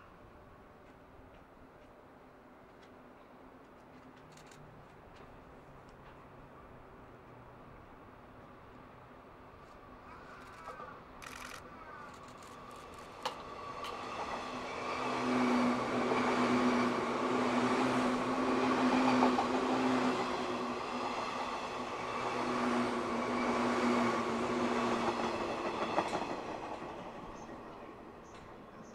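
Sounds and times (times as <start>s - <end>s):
wheels on rail noise: 0.0s - 28.9s
electric train humming: 12.2s - 28.9s.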